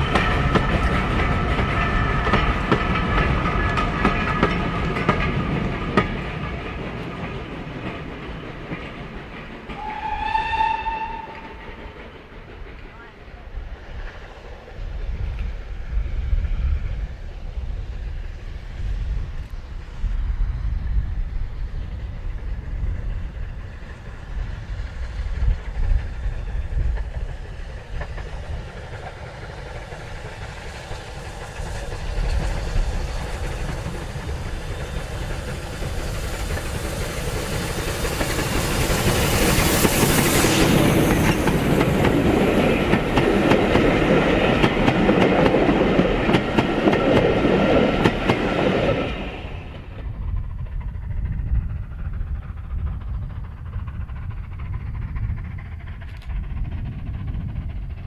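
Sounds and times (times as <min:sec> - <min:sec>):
wheels clacking over rail joints: 0:00.0 - 0:13.1, 0:24.9 - 0:50.9
train passing: 0:00.0 - 0:58.0.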